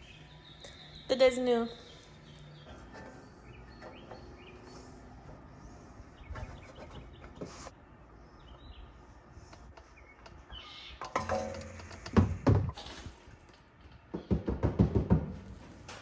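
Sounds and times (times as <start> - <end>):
birds chirping: 0.0 - 12.7
knocks and clatters: 2.6 - 7.7, 11.0 - 16.0.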